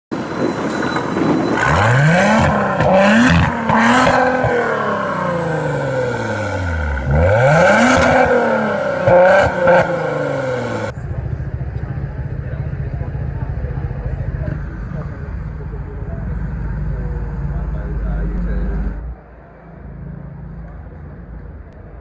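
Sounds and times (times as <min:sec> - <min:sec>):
car engine accelerating: 0:01.6 - 0:22.0.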